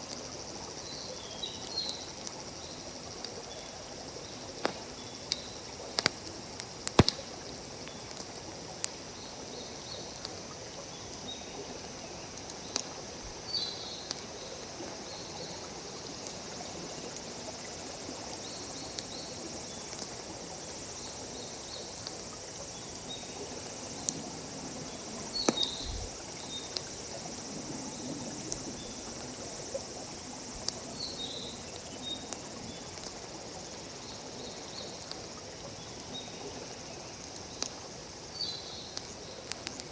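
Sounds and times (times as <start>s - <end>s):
insect chirps: 0.0s - 39.9s
insects hissing: 0.0s - 39.9s
wood fire crackling and popping: 4.6s - 7.4s.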